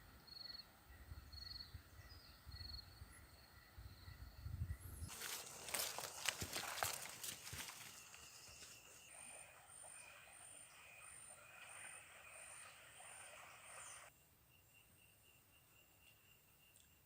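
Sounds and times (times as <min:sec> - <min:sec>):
crackling rustles: 0:05.1 - 0:09.1.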